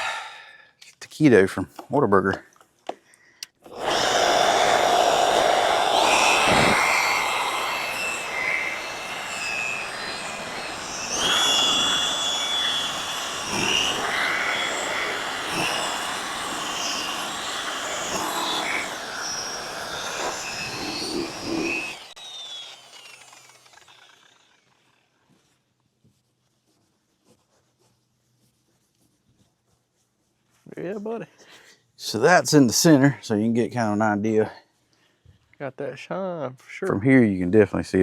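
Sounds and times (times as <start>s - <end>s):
electric buffing machine whine: 3.7s - 25.0s.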